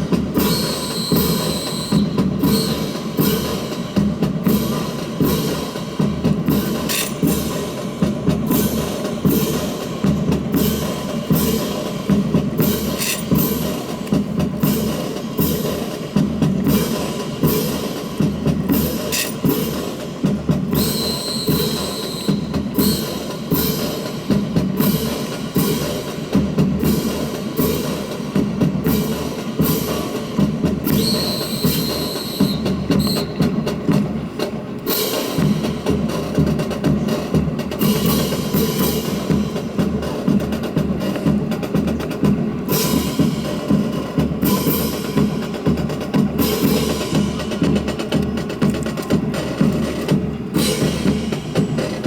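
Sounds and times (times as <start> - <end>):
drum beat: 0.0 - 52.0.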